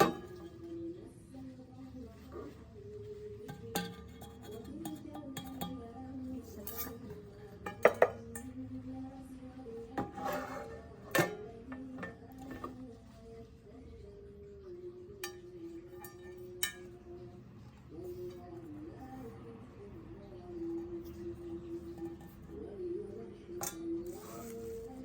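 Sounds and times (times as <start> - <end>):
metal pans clanking together: 0.0 - 0.6, 3.4 - 5.8, 6.5 - 8.5, 10.0 - 12.8.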